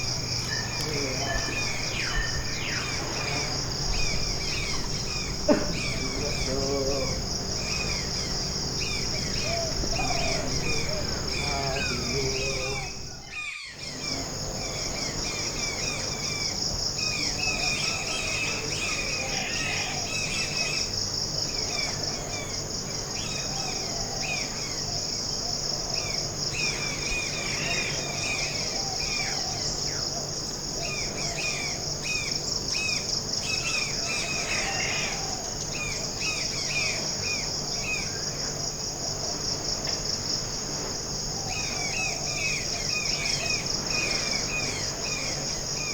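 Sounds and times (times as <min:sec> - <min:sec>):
high-pitched insect chorus: 0:00.0 - 0:45.9
bird chirps: 0:00.3 - 0:14.0.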